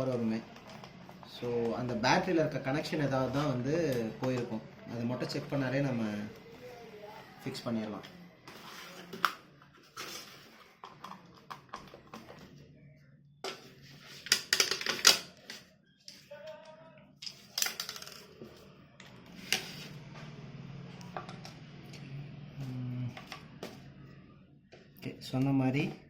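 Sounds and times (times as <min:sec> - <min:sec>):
plastic parts clicking and clattering: 0:14.2 - 0:16.2, 0:17.2 - 0:18.4.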